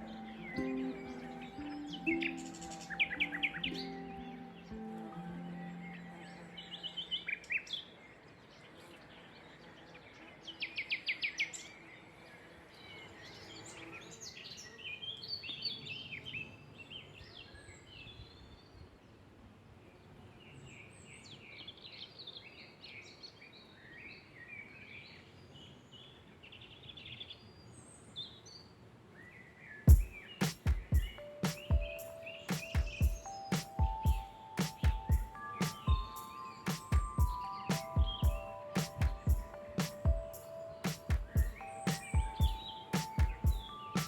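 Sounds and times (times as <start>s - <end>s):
songbirds singing: 0.0s - 12.1s, 20.4s - 44.0s
soft outdoor hiss: 27.3s - 44.0s.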